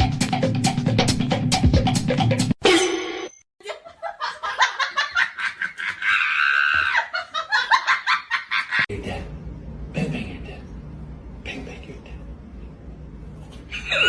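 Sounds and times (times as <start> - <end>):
person laughing hard: 3.6 - 8.9, 13.7 - 14.0.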